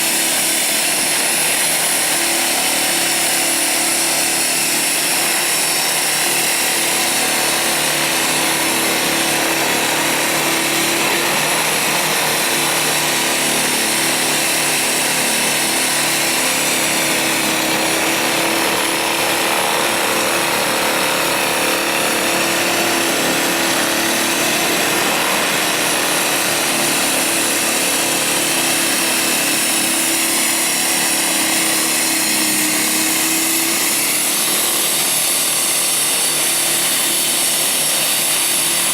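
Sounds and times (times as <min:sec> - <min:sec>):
electric snowblower whining: 0:00.0 - 0:38.9.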